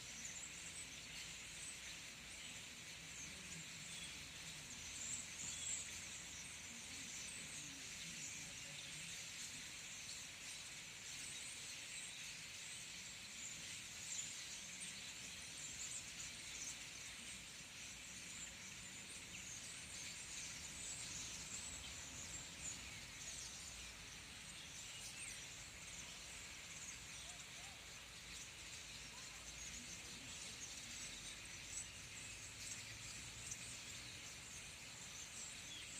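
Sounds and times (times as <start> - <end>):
flock of birds chattering: 0.0 - 35.9.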